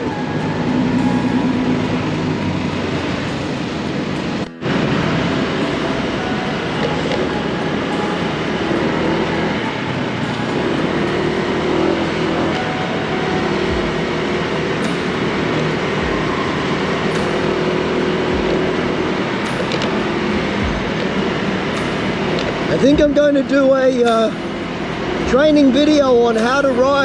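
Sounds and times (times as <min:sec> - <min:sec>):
faint engine drone: 0:00.0 - 0:27.0
scooter road and traffic noise: 0:00.0 - 0:27.0
short low thumps: 0:13.6 - 0:14.2, 0:16.0 - 0:16.6, 0:18.2 - 0:18.9, 0:19.5 - 0:25.8.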